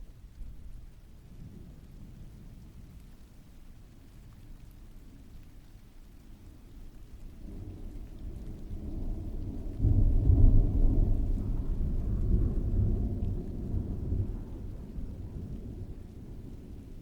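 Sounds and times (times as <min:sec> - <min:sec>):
steady rainfall: 0:00.0 - 0:17.0
rolling thunder: 0:07.4 - 0:17.0.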